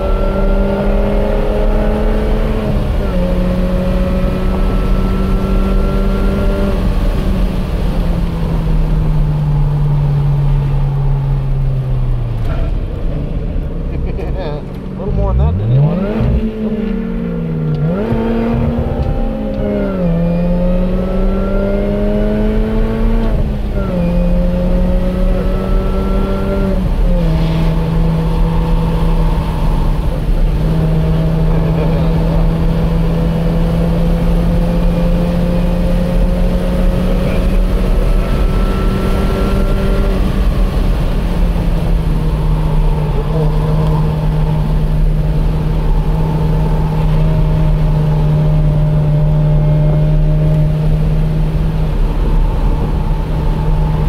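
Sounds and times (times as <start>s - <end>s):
car engine accelerating: 0.0s - 54.0s
wind noise: 15.3s - 54.0s.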